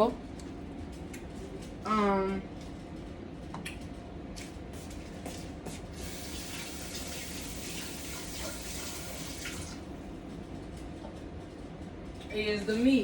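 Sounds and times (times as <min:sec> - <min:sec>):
water running from kitchen tap: 0:05.9 - 0:09.9.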